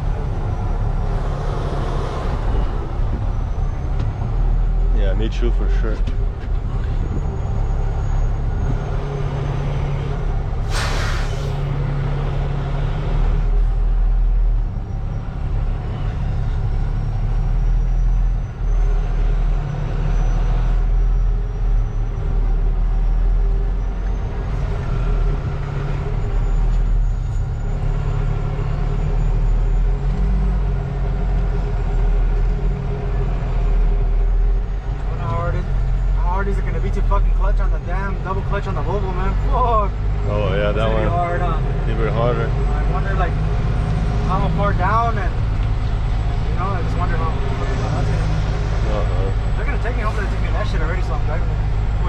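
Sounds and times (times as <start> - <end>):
diesel truck engine running: 0.0 - 52.0
air brakes hissing: 10.6 - 11.8.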